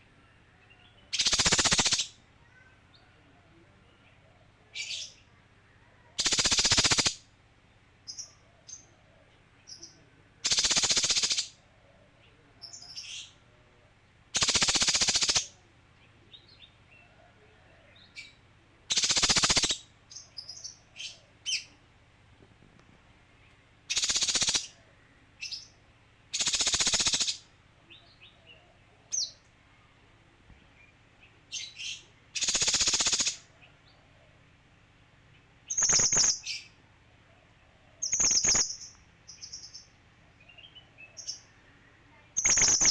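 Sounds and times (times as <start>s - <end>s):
bird high chirps: 0.7s - 3.0s, 6.0s - 7.2s, 9.7s - 11.6s, 14.4s - 15.5s, 18.0s - 21.8s, 23.9s - 24.8s, 25.4s - 29.5s, 30.8s - 34.0s, 35.7s - 36.8s, 38.0s - 41.6s, 42.2s - 42.9s
bird harsh rasping calls: 1.1s - 2.2s, 6.2s - 7.2s, 10.4s - 11.6s, 14.4s - 15.5s, 18.9s - 19.8s, 23.9s - 24.8s, 26.3s - 27.5s, 31.7s - 33.5s, 42.4s - 42.9s.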